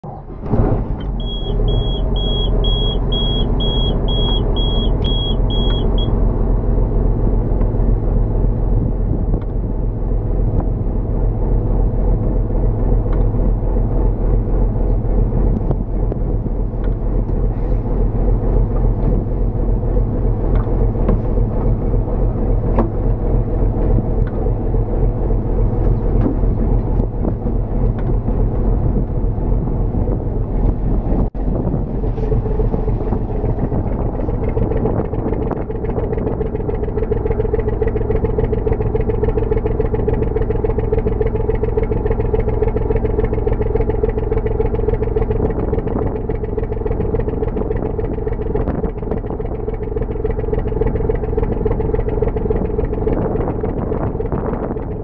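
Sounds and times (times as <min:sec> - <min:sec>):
boat engine running: 0:00.0 - 0:55.0
warning alarm beeping: 0:01.2 - 0:06.2.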